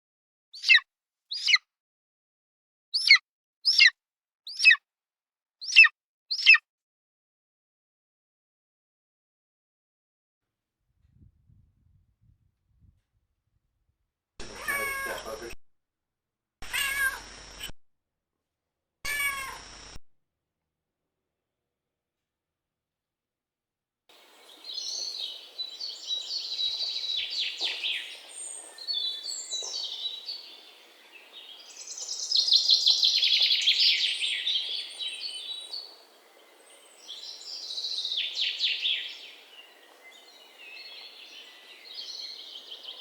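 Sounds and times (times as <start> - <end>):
bird singing high trills: 0.6 - 1.6, 3.0 - 3.9, 4.5 - 4.8, 5.6 - 6.6, 24.2 - 43.0.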